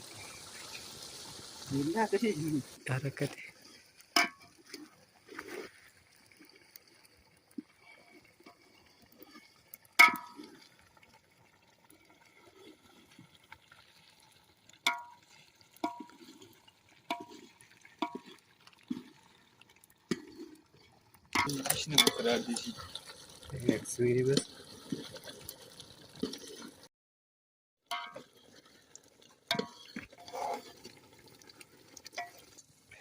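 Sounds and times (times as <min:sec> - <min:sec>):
utensil clinking on metal pot: 0:04.1 - 0:04.9, 0:10.0 - 0:10.5, 0:14.8 - 0:16.2, 0:17.0 - 0:19.2, 0:21.3 - 0:25.0, 0:27.9 - 0:28.4, 0:29.5 - 0:30.8, 0:32.1 - 0:32.6.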